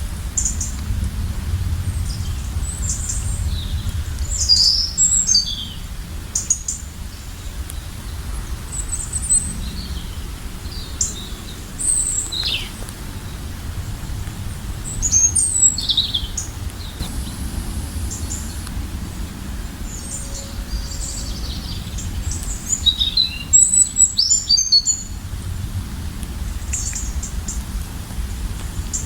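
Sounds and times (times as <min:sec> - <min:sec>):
steady low rumble: 0:00.0 - 0:06.4, 0:12.9 - 0:29.0
small birds chirping: 0:14.8 - 0:25.2.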